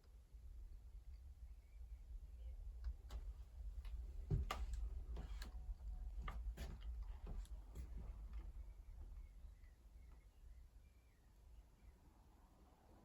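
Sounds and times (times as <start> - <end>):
low steady hum: 0.0 - 13.0
light irregular clicks and taps: 6.2 - 8.5.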